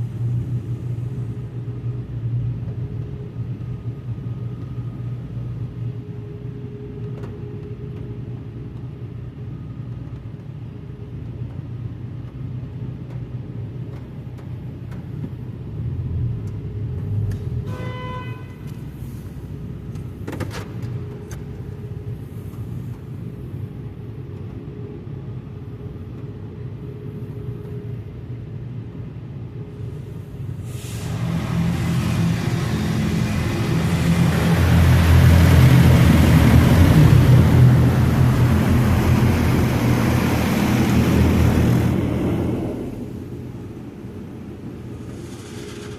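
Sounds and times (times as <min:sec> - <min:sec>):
car wash equipment hissing: 0:29.9 - 0:45.9.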